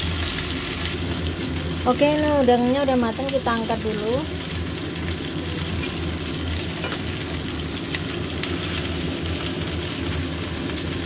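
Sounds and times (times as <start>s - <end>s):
shrimp sizzling in hot oil: 0.0s - 11.0s
metal tongs in pan: 5.6s - 7.3s.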